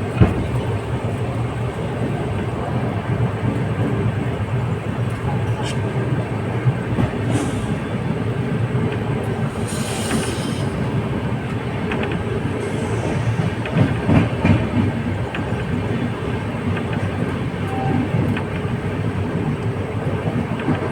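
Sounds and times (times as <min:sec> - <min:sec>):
train rumbling on track: 0:00.0 - 0:20.9
wheels clacking over rail joints: 0:00.0 - 0:20.9
short hiss: 0:09.5 - 0:10.9.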